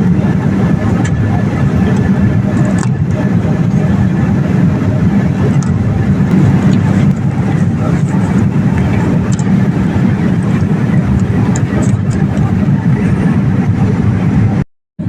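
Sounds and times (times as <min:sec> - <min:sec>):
airliner cabin engine noise: 0:00.0 - 0:14.7.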